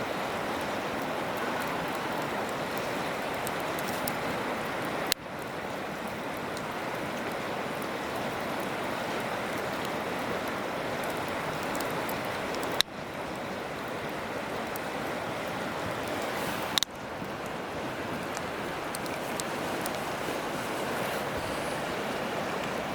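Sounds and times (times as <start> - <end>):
campfire crackling: 0.0 - 22.9
river water flowing: 0.0 - 22.9.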